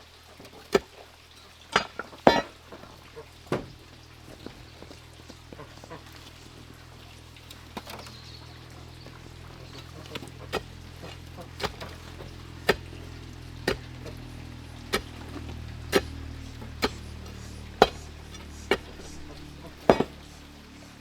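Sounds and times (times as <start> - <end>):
steady low hum: 1.8 - 21.0
sharp knocks: 17.8 - 20.2.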